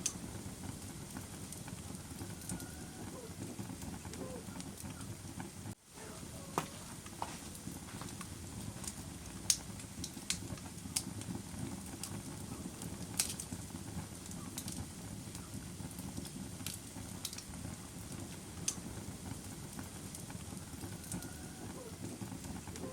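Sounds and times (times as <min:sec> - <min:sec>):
fire crackling: 0:00.0 - 0:22.9.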